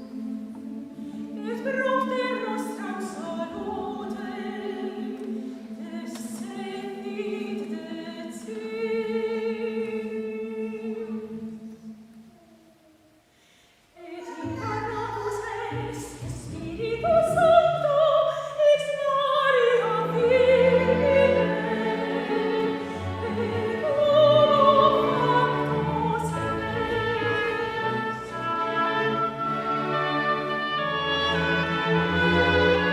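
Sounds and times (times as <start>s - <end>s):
chamber orchestra playing: 14.2s - 18.3s, 19.3s - 32.9s.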